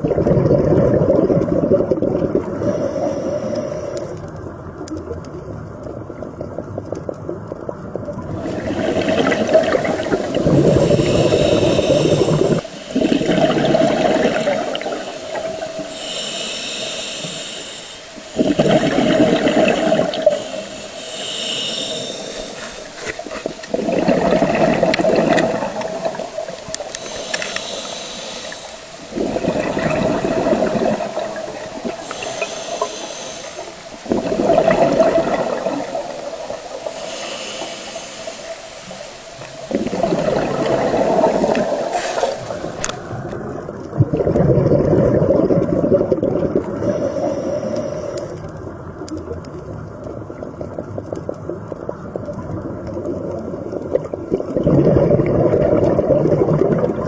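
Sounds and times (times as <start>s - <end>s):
exhaled bubbles rushing: 0.0s - 2.8s, 5.0s - 16.0s, 18.2s - 20.8s, 21.9s - 47.8s, 48.9s - 57.0s
regulator hiss on inhale: 2.5s - 4.5s, 8.4s - 23.8s, 24.8s - 43.4s, 46.6s - 48.7s.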